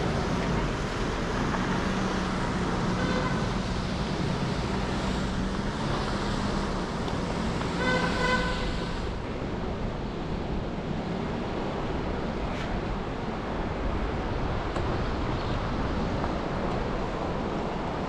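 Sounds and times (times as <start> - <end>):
city street traffic: 0.0 - 18.0
car horn honking: 3.0 - 3.5, 7.7 - 8.9.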